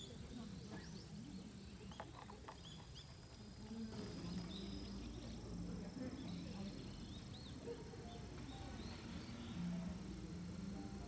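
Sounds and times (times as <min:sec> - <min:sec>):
high insect tone: 0:00.0 - 0:11.0
small birds chirping: 0:00.0 - 0:11.0.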